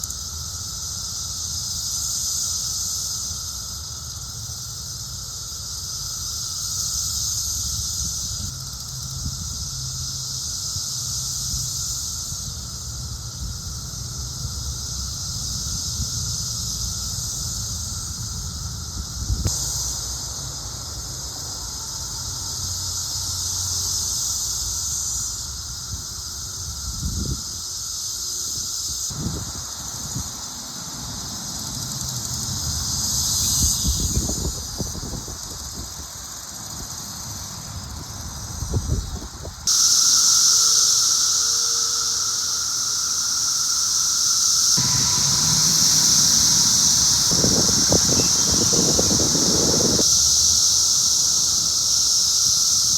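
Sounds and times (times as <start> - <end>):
cicadas buzzing: 0.0 - 52.9.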